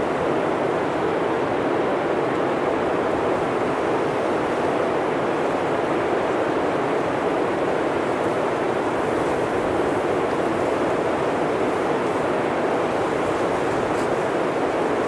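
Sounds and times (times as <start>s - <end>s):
blizzard wind through forest: 0.0s - 15.0s.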